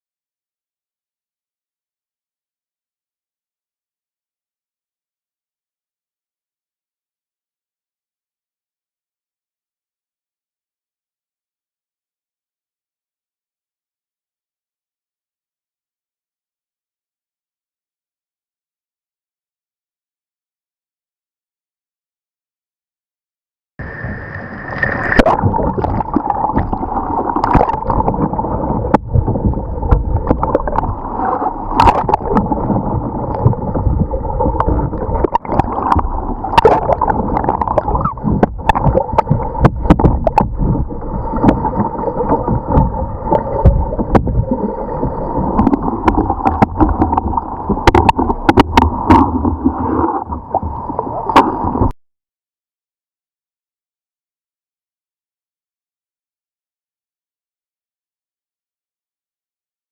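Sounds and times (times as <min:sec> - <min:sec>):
water gurgling and splashing: 0:23.8 - 0:51.9.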